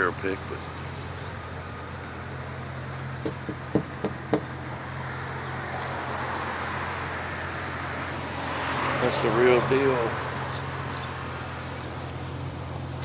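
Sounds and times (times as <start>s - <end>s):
low engine hum: 0.0s - 13.0s
sharp knocks: 3.2s - 4.6s.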